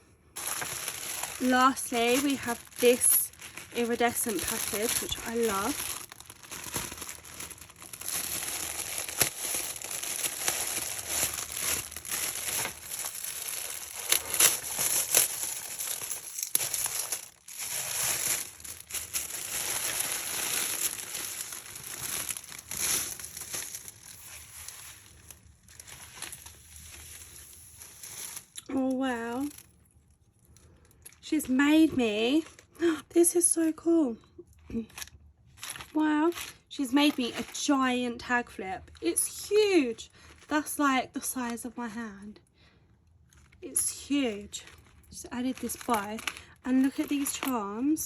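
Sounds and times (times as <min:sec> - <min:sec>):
package wrapping crinkling: 0:00.4 - 0:29.6, 0:35.0 - 0:37.7, 0:44.6 - 0:47.5.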